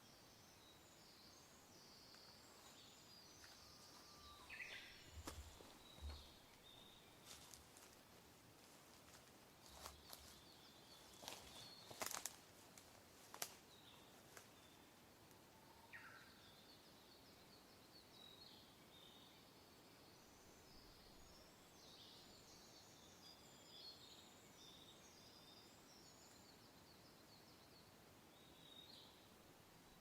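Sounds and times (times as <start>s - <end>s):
soft wind hiss: 0.0s - 30.0s
birds chirping and trilling: 3.1s - 7.6s.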